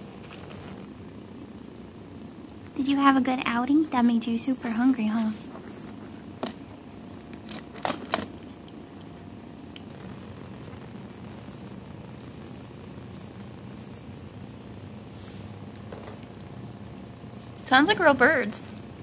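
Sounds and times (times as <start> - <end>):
small bird chirping: 0.0 - 0.9, 4.3 - 6.0, 11.2 - 14.2, 15.0 - 15.9, 17.5 - 17.9.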